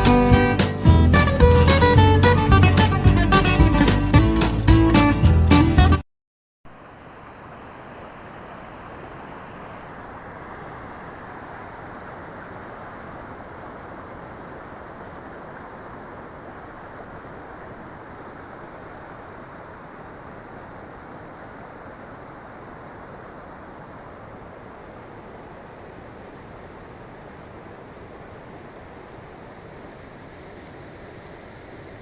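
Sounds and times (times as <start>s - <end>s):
guitar tune: 0.0s - 6.0s.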